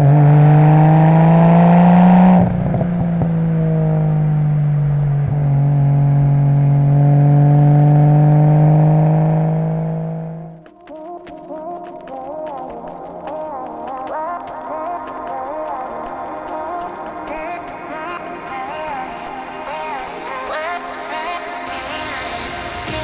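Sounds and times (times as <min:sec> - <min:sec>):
car engine revving under load: 0:00.0 - 0:10.6.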